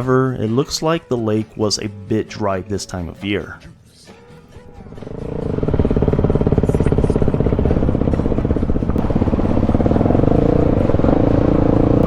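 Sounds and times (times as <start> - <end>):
dirt bike engine running: 4.6 - 12.0.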